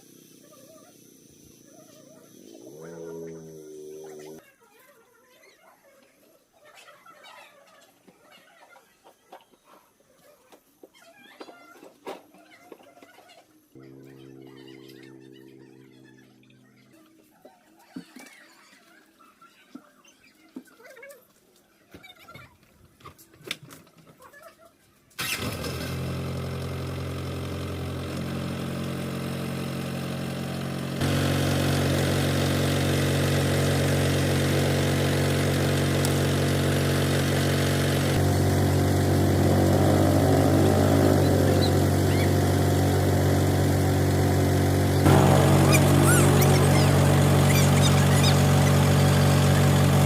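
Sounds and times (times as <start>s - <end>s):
engine running: 13.8s - 17.0s, 25.2s - 50.0s.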